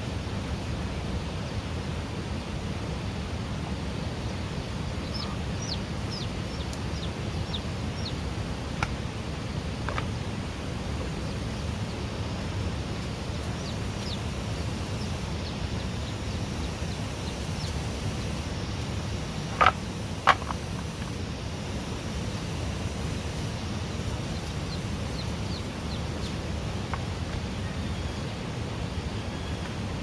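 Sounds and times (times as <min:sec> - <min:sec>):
low rushing background noise: 0:00.0 - 0:30.0
chicks peeping: 0:04.9 - 0:10.4, 0:13.0 - 0:21.2, 0:22.3 - 0:27.9.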